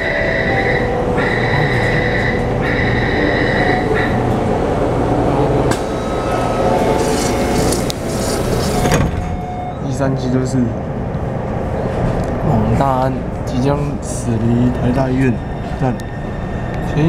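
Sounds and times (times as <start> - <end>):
high warning beeps: 0.0 - 4.2
train rumble: 0.0 - 17.0.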